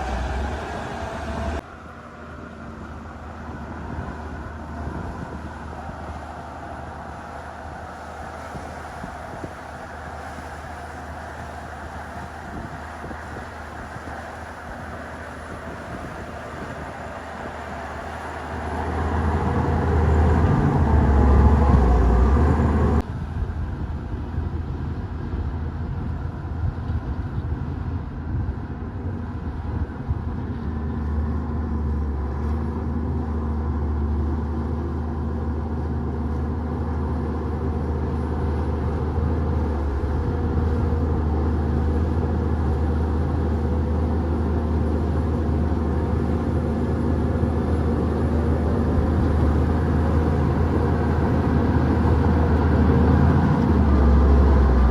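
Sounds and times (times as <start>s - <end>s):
bulldozer diesel engine under load: 0.0s - 54.9s.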